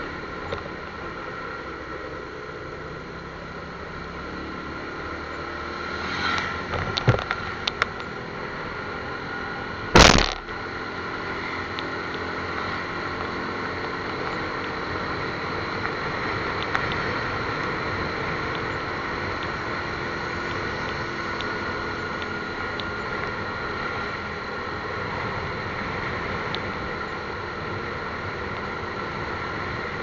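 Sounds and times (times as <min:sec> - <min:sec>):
vehicle noise: 0:00.0 - 0:30.0
sharp loud crack: 0:09.9 - 0:10.5.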